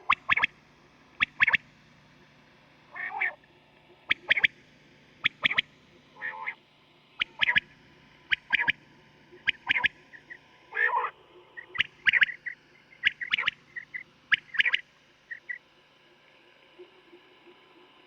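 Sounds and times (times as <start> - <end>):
quail calling: 0.0 - 0.5, 2.9 - 3.4, 4.1 - 4.5, 6.2 - 6.6, 7.2 - 7.6, 8.3 - 8.8, 9.4 - 15.6
steady low hum: 0.0 - 18.0.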